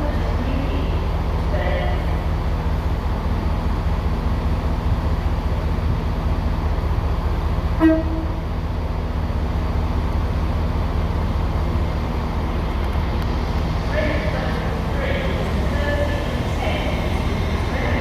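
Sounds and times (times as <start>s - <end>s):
train engine rumbling: 0.0s - 18.0s
train horn toot: 7.8s - 8.5s.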